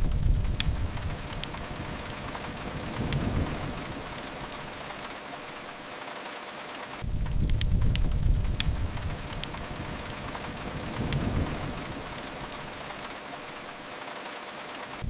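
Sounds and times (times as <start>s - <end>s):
low rumble: 0.0s - 5.1s, 7.0s - 13.1s
steady rain hiss: 0.0s - 15.0s
wood fire crackling: 0.0s - 15.0s.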